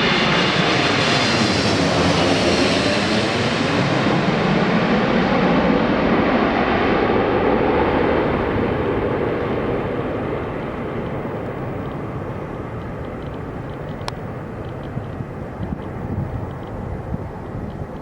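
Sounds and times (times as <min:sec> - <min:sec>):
jet airliner rumble: 0:00.0 - 0:18.0.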